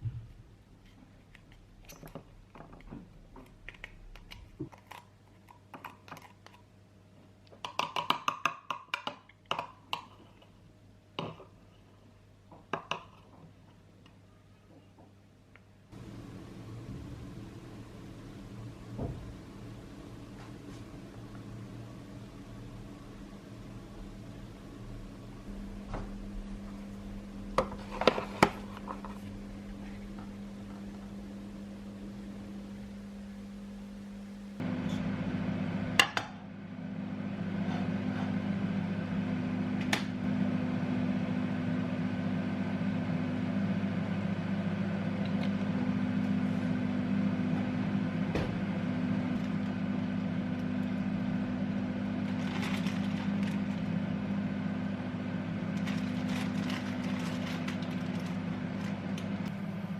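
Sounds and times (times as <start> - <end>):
appliance motor humming: 37.6 - 59.9.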